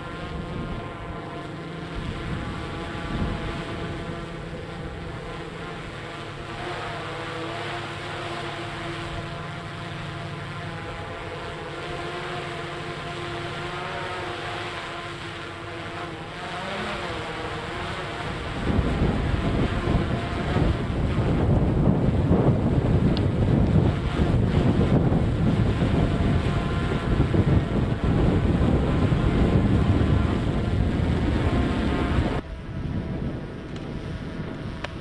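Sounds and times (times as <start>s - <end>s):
wind buffeting microphone: 0.0s - 6.7s, 16.8s - 35.0s.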